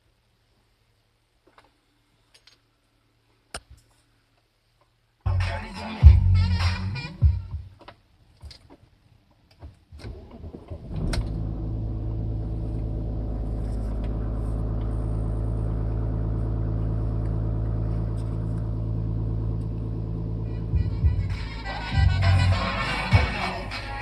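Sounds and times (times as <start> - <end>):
diesel engine starting and idling: 10.1 - 24.0.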